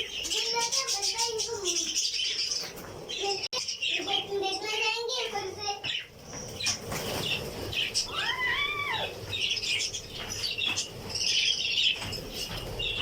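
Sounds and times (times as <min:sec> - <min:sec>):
parrots chattering and chirping: 0:00.0 - 0:13.0
parrot call rising and falling: 0:08.1 - 0:09.2.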